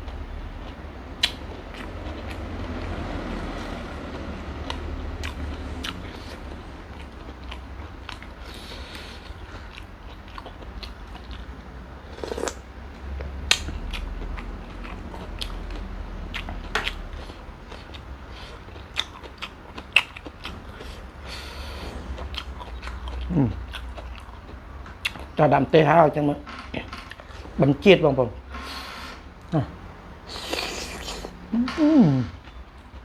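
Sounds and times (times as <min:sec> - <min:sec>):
person chewing prawns: 0:00.0 - 0:27.7, 0:28.4 - 0:33.0
wet mouth sounds: 0:29.4 - 0:32.6.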